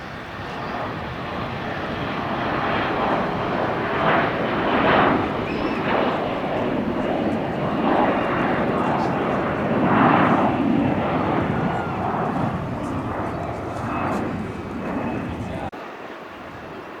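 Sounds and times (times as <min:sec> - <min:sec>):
airliner engines rushing: 0:00.0 - 0:17.0.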